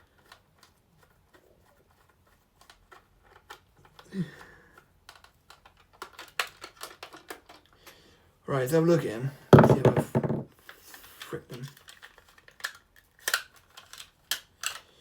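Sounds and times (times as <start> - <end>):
clicks of plastic parts handled: 2.0 - 4.1, 4.8 - 7.8, 9.6 - 15.0.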